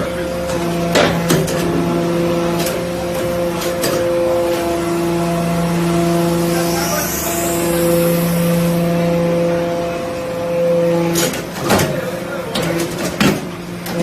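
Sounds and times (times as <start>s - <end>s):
hydraulic baler pump humming: 0.1s - 5.9s.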